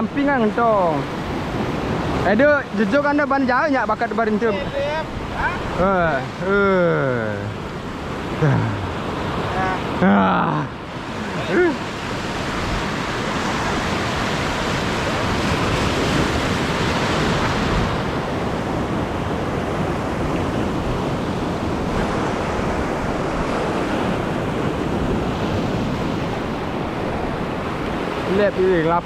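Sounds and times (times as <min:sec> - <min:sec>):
surf washing over reef: 0:00.0 - 0:29.0
wind on microphone: 0:10.9 - 0:28.3.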